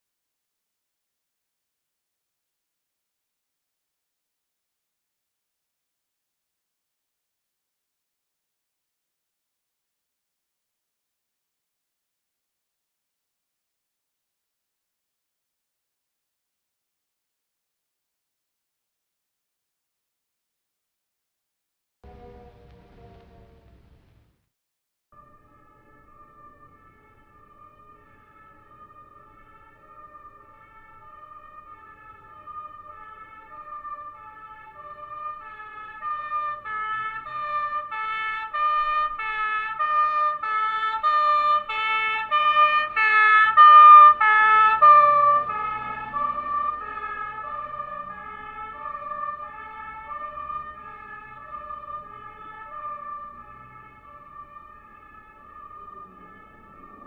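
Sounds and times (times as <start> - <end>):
two-tone emergency siren: 22.0 - 24.1, 25.2 - 57.0
low vehicle rumble: 22.0 - 24.4, 42.9 - 57.0.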